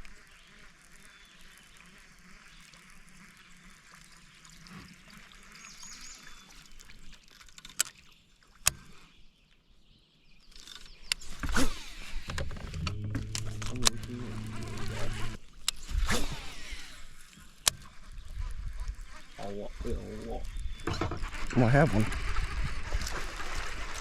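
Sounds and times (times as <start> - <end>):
faint water sounds: 0.0 - 24.0
sharp clicks: 10.5 - 16.2
low buzzing hum: 11.2 - 24.0.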